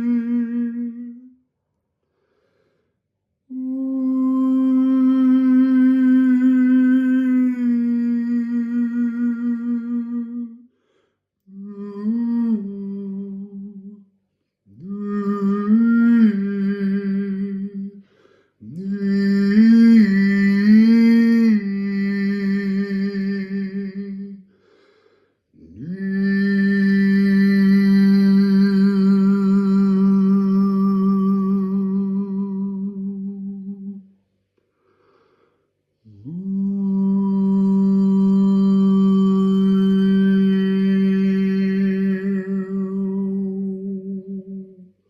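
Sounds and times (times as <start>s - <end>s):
man breathing: 2.0s - 3.1s, 10.7s - 11.3s, 18.0s - 18.6s, 24.5s - 25.5s, 34.6s - 36.1s.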